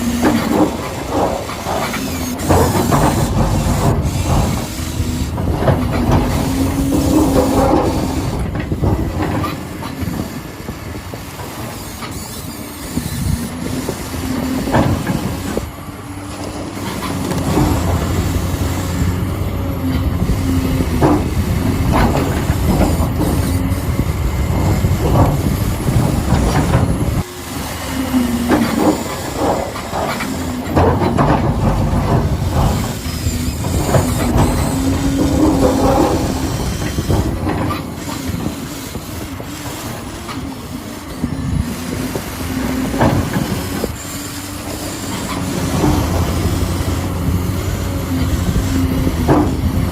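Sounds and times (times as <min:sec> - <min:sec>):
electric motor whine: 0:00.0 - 0:49.9
toy excavator motors running: 0:00.0 - 0:49.9
clicking and rattling: 0:00.2 - 0:10.2, 0:28.5 - 0:40.5.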